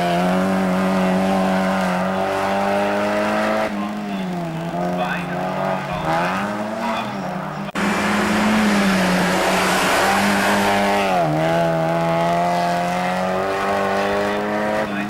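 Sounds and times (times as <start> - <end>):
race car engine at high revs: 0.0 - 15.0
road and wind noise: 0.0 - 15.0.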